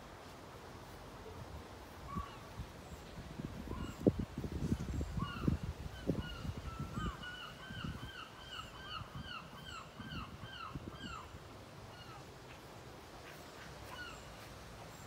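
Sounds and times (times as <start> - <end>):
bird calling: 2.0 - 3.0, 4.8 - 15.0.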